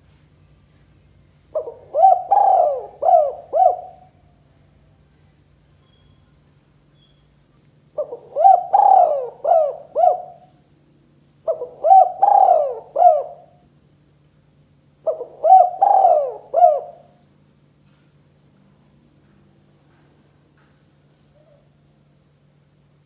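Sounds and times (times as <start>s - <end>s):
dove cooing: 1.6s - 4.2s, 8.0s - 10.5s, 11.4s - 13.6s, 15.0s - 17.2s.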